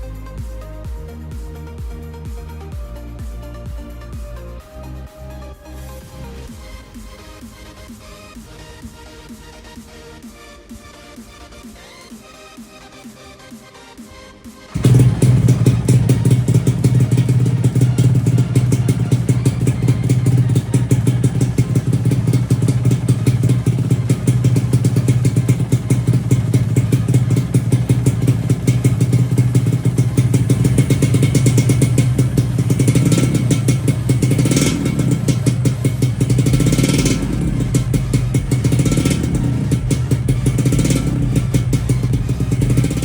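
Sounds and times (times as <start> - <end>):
two-stroke motorcycle engine running: 14.7 - 43.0.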